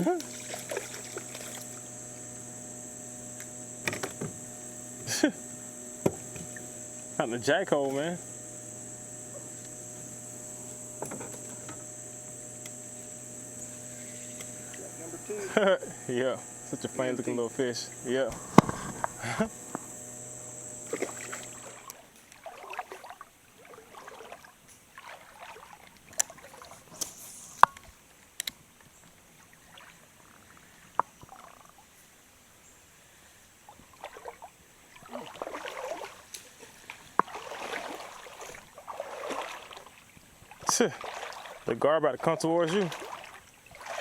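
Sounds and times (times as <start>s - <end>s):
high steady buzz: 0.0s - 22.0s
water sloshing and splashing: 0.0s - 26.9s, 29.4s - 30.5s, 33.8s - 44.0s
sharp clicks: 0.2s - 22.0s.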